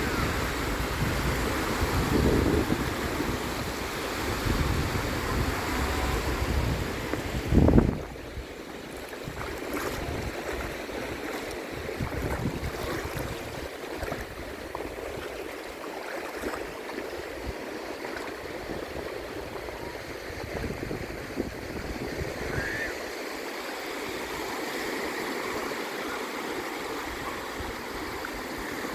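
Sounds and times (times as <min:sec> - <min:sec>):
wind rumble on microphone: 0:00.0 - 0:15.6, 0:17.2 - 0:22.8
water lapping and splashing: 0:00.0 - 0:28.9.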